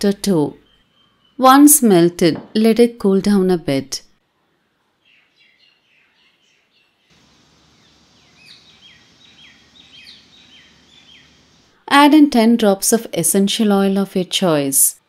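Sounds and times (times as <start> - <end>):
soft bird chirps: 5.0 - 11.8
steady hiss: 7.1 - 11.8
bird whistling repeated notes: 7.3 - 11.6.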